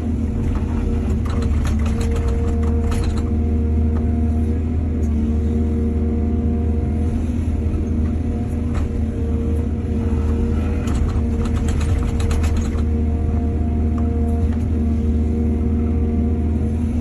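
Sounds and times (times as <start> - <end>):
diesel excavator engine: 0.0 - 17.0
knocks and rattles: 0.5 - 3.3, 10.7 - 13.0.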